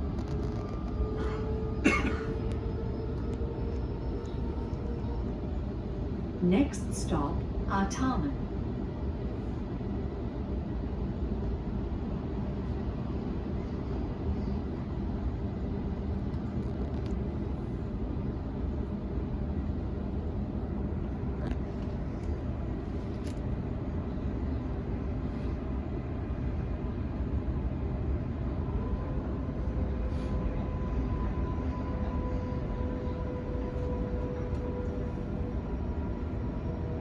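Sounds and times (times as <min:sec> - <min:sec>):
train wheels rumbling on track: 0:00.0 - 0:37.0.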